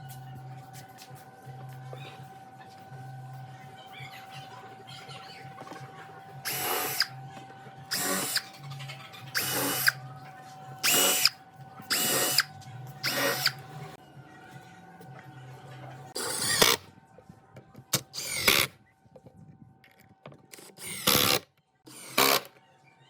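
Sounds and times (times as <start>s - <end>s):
power drill motor whine: 6.4s - 8.6s, 9.3s - 10.0s, 10.8s - 13.7s, 18.2s - 18.7s, 20.6s - 22.5s.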